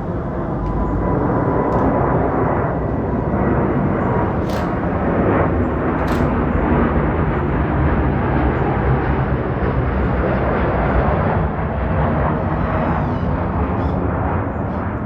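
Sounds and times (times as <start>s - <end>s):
jet engines running: 0.0s - 15.0s
faint high clicks: 6.0s - 6.4s.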